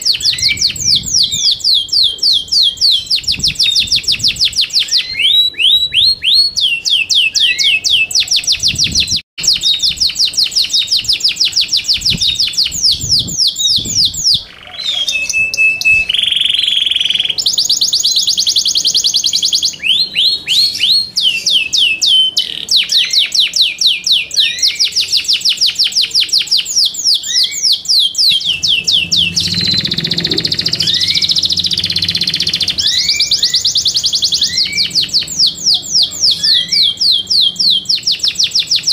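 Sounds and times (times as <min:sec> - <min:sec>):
canary singing: 0:00.0 - 0:38.9
harsh buzzing bird phrase: 0:28.2 - 0:37.9.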